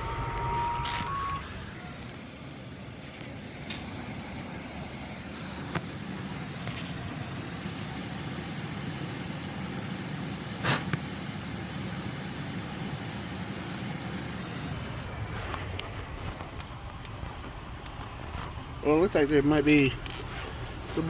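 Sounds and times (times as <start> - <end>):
furnace humming: 0.0 - 21.0.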